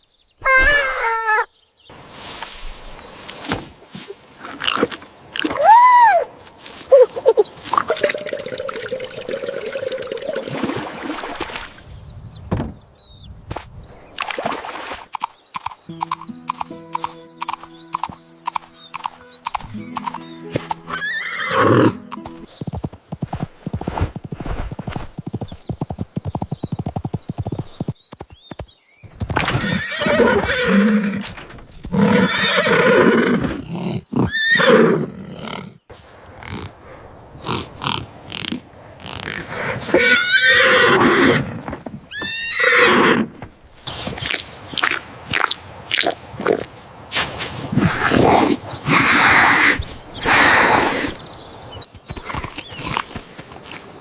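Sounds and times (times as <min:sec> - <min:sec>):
horse whinnying: 0:00.4 - 0:01.5, 0:20.9 - 0:22.0, 0:29.4 - 0:35.7, 0:39.9 - 0:43.3, 0:47.8 - 0:51.2
hooves clip-clopping: 0:15.2 - 0:30.6, 0:51.8 - 0:54.0
music: 0:15.9 - 0:22.5.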